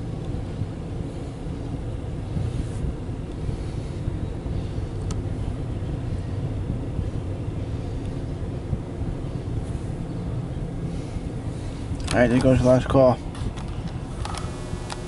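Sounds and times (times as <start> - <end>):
freight train wheels rumbling: 0.0 - 14.4
sharp click: 14.2 - 15.0.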